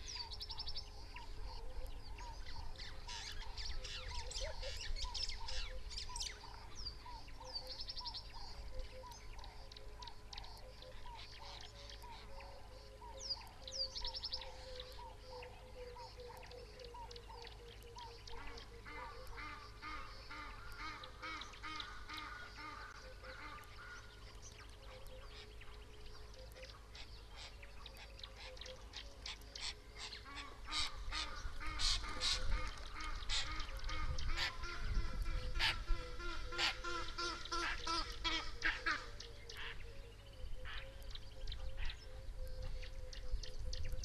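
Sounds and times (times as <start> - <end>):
faint steady tone: 0.0 - 44.0
birds honking: 14.5 - 41.0.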